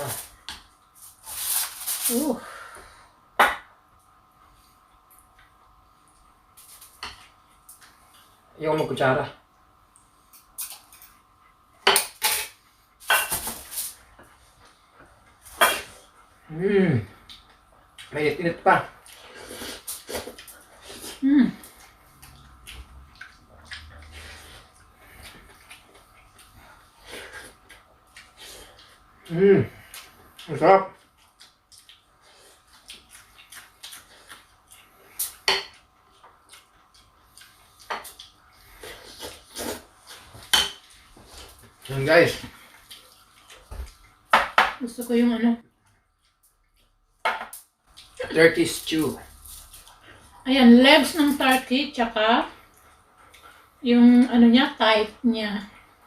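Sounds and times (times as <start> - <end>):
scrapes and rustles of eating: 0.0 - 2.3, 4.4 - 8.5, 18.9 - 29.1, 29.7 - 44.2, 47.9 - 50.4.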